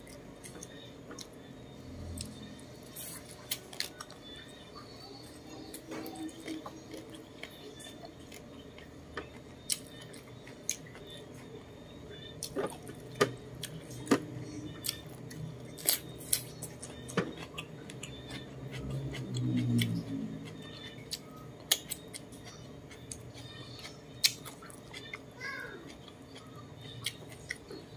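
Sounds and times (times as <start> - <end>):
person chewing food: 0.0 - 27.9.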